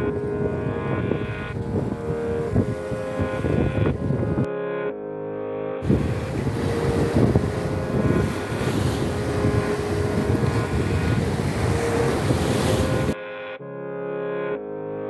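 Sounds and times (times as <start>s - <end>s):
wind buffeting the microphone: 0.0s - 4.5s, 5.8s - 13.2s.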